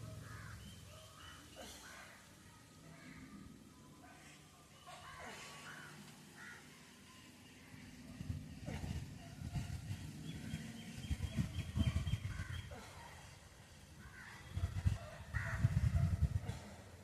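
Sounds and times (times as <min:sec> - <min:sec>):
crows cawing: 0:00.2 - 0:00.6, 0:05.7 - 0:06.7, 0:15.3 - 0:15.7.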